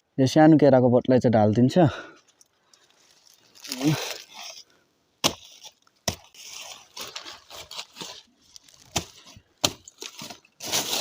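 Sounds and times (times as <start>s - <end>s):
rustling: 2.2s - 11.0s
blade chopping plant stem: 5.2s - 7.8s, 8.8s - 10.3s.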